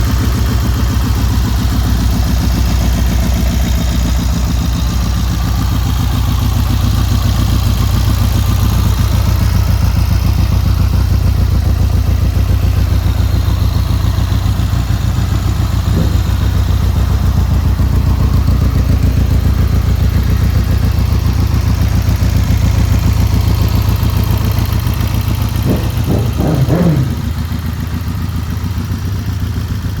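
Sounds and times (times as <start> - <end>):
motorcycle engine idling and revving: 0.0 - 30.0.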